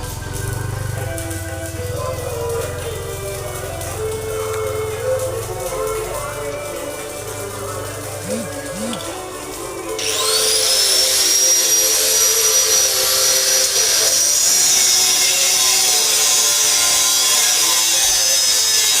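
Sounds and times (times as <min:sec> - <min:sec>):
electric motor whining: 0:08.1 - 0:15.4
loud hiss: 0:10.0 - 0:15.0.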